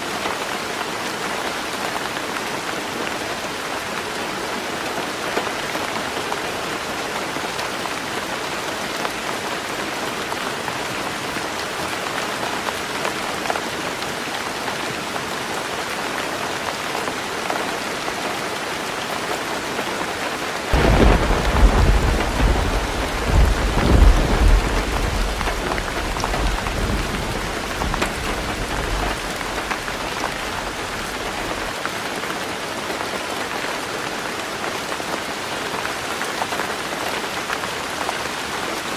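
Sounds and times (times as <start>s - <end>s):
heavy rain on a roof: 0.0s - 38.9s
thunder rumbling: 20.8s - 31.7s.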